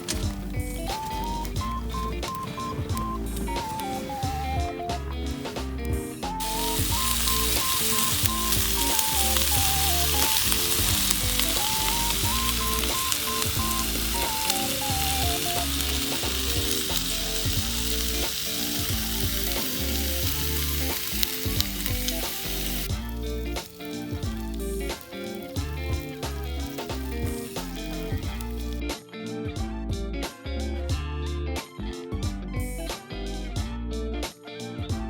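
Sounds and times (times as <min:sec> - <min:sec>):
food sizzling in a pan: 0:00.0 - 0:28.8
background music with bass: 0:00.0 - 0:35.0.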